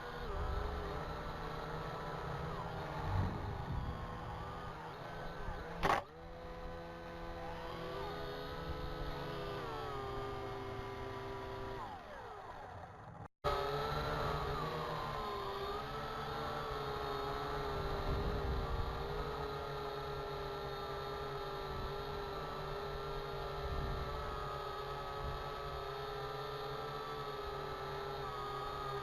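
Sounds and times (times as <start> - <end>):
quadcopter propellers whining: 0.0 - 29.0
low wind rumble: 2.9 - 4.8
sharp click: 5.8 - 6.1.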